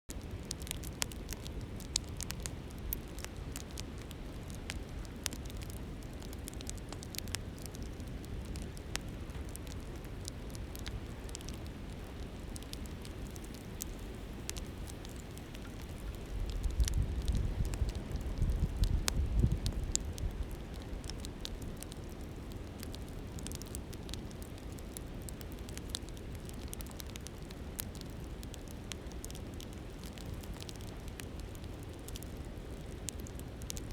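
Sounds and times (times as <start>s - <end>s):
campfire crackling and popping: 0.1s - 33.9s
wind rumble on microphone: 0.4s - 22.6s.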